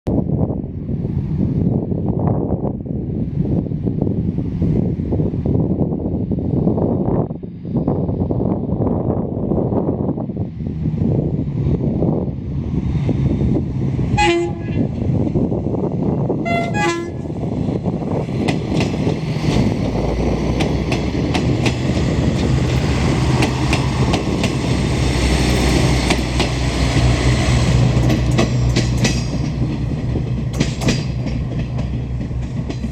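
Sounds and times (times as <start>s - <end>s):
train engine drone: 0.1s - 32.9s
train horn toots: 14.2s - 14.9s, 16.4s - 17.3s
wheels clacking over rail joints: 18.2s - 32.9s.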